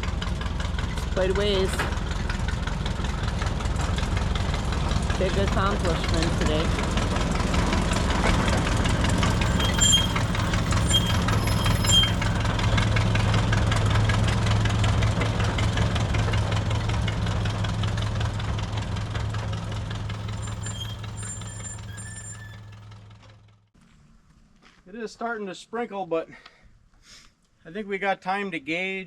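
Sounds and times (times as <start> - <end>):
locomotive engine running: 0.0 - 23.7
faint high squeaks: 8.8 - 12.8, 20.1 - 22.8.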